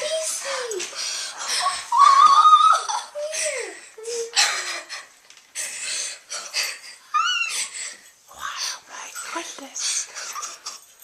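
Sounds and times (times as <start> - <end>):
children shrieking and laughing: 1.4 - 4.8, 7.1 - 7.8.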